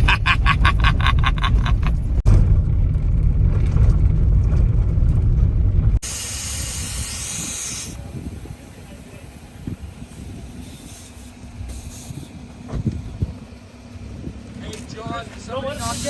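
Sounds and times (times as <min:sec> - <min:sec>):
vehicle engine and tyres rumbling: 0:00.0 - 0:16.0
steady hiss: 0:06.0 - 0:12.6, 0:15.6 - 0:16.0.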